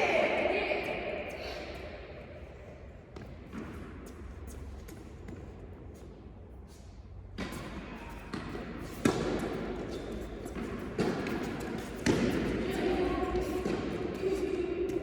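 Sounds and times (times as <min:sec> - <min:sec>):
tennis balls bouncing: 0:03.1 - 0:06.2, 0:07.3 - 0:15.0.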